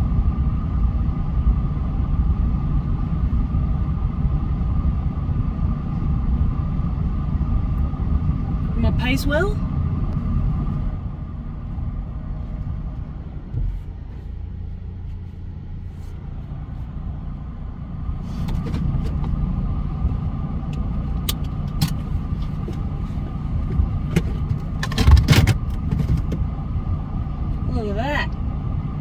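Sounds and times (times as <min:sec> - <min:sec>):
engine and tyres rumbling: 0:00.0 - 0:29.0
sharp knocks and rattles: 0:23.6 - 0:26.5.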